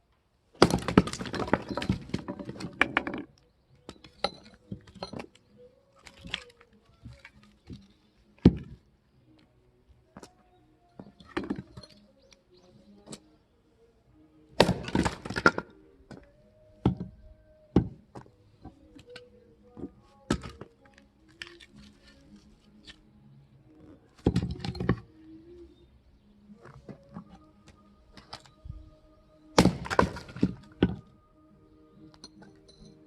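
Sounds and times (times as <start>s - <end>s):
splitting tool striking wood: 0.6s - 3.0s, 14.6s - 15.7s, 29.6s - 31.0s
wood cracking and splintering: 0.6s - 8.8s, 14.6s - 16.2s, 19.8s - 23.0s, 29.6s - 31.1s.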